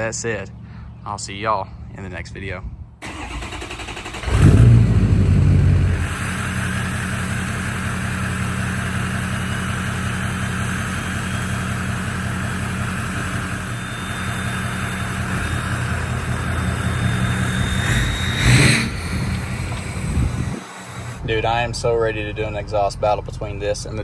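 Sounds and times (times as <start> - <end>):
diesel engine idling: 3.0 - 24.0.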